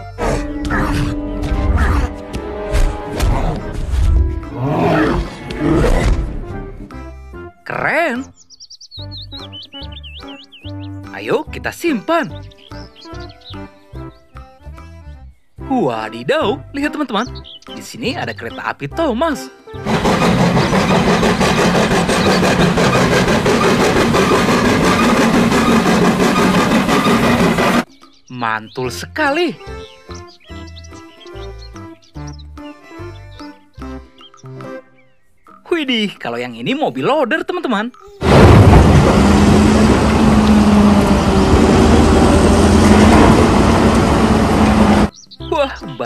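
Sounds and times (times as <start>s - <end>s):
loud engine throbbing: 19.8s - 27.9s, 38.2s - 45.1s.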